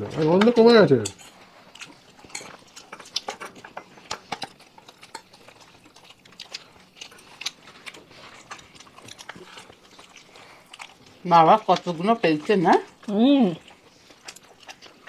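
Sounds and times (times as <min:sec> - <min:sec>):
spoons scraping and clinking on plates: 0:00.2 - 0:04.5.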